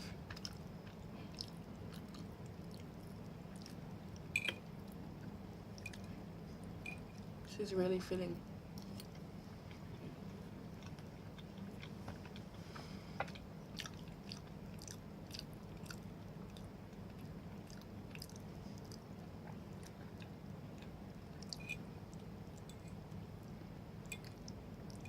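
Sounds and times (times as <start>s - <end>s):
steady low hum: 0.0s - 25.0s
person chewing food: 0.2s - 7.3s, 8.7s - 23.2s, 24.0s - 25.0s.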